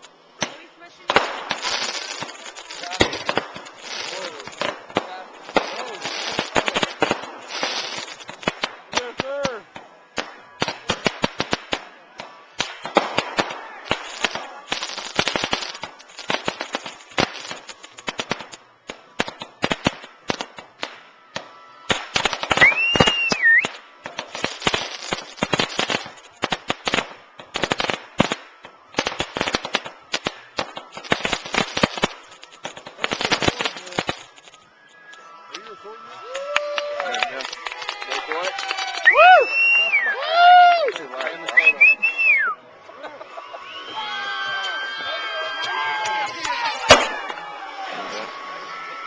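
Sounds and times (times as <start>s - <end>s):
fireworks bangs and crackling: 0.0s - 42.5s, 43.3s - 49.0s
firework whistle: 12.6s - 40.6s, 41.5s - 42.6s, 43.5s - 49.0s.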